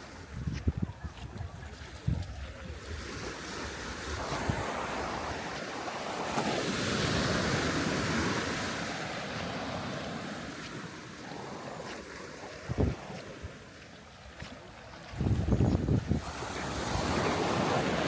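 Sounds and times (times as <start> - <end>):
wind buffeting microphone: 0.2 - 5.6, 12.6 - 13.6, 15.0 - 18.0
sea waves breaking on beach: 1.6 - 18.0.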